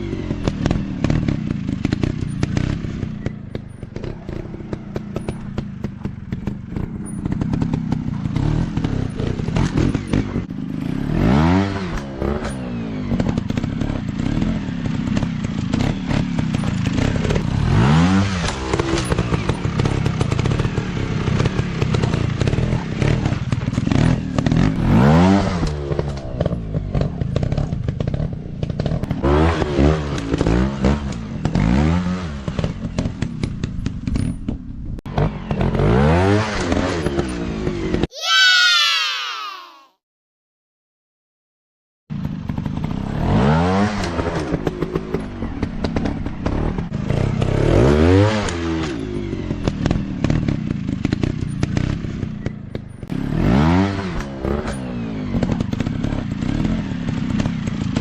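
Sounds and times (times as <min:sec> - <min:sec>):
bikes clattering on rough ground: 0:00.4 - 0:10.8.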